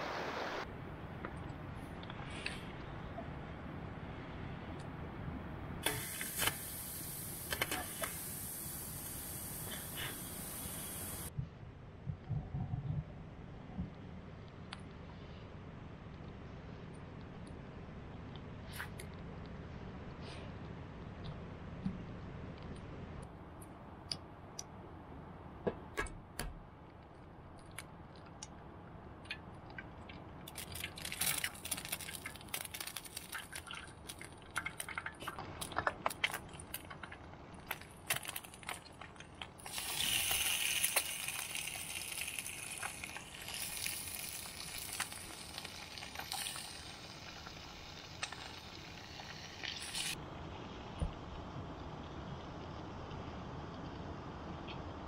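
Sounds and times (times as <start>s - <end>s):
food sizzling in hot oil: 5.9s - 11.3s, 39.6s - 50.2s
oil popping and spitting: 29.3s - 50.2s.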